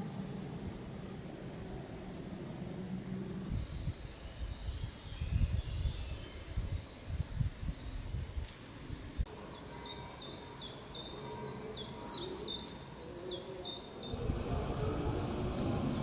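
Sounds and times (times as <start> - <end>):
songbird singing: 0.0 - 16.0
microphone rumbling: 14.1 - 16.0.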